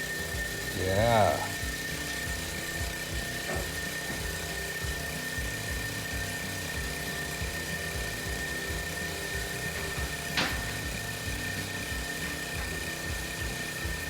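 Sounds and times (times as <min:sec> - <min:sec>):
small engine running: 0:00.0 - 0:14.0
steady high whine: 0:00.0 - 0:14.0.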